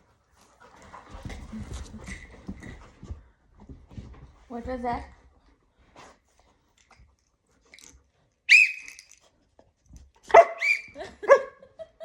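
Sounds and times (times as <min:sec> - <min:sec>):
puppy yelping: 0:08.5 - 0:09.0, 0:10.3 - 0:11.0
puppy barking: 0:10.3 - 0:11.5.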